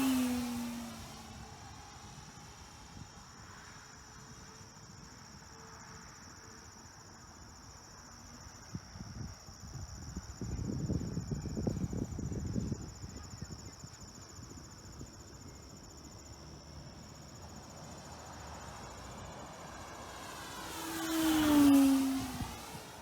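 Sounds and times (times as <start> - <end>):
model airplane motor whining: 0.0 - 1.8, 18.2 - 23.0
insects chirring: 0.0 - 23.0.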